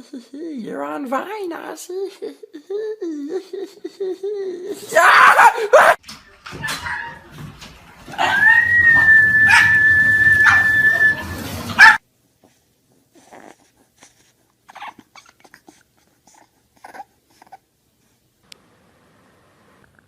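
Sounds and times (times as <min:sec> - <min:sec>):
dog whining: 0:08.1 - 0:12.0, 0:13.2 - 0:17.6.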